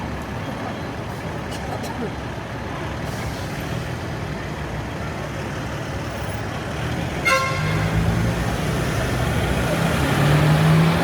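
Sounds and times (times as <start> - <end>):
city road traffic rumble: 0.0 - 11.0
vehicle engine hum: 0.0 - 11.0
car horn toot: 7.2 - 7.9.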